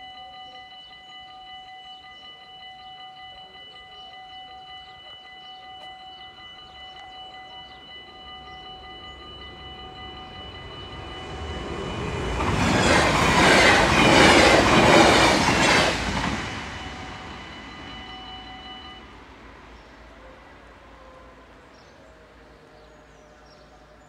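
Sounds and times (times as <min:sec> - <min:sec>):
electric train passing: 0:00.0 - 0:24.0
level crossing warning bells: 0:00.0 - 0:24.0
wheels rushing on rail: 0:05.2 - 0:22.6.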